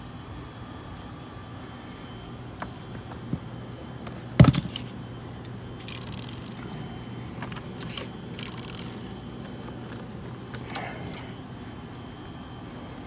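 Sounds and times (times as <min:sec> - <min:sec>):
steady low hum: 0:00.0 - 0:13.0
handling clicks and scrapes: 0:05.8 - 0:06.8, 0:07.4 - 0:11.4.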